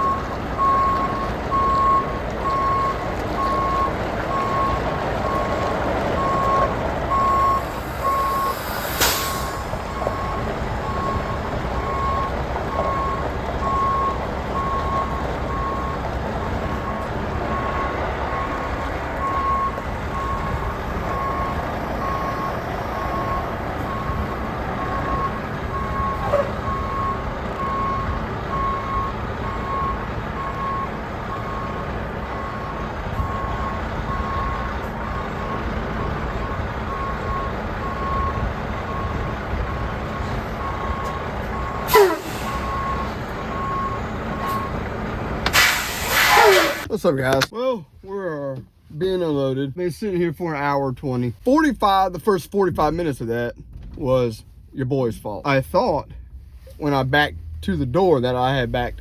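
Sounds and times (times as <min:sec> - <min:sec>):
truck reversing alarm beeping: 0:00.0 - 0:46.9
diesel engine running: 0:00.0 - 0:47.0
air hiss: 0:45.5 - 0:46.9.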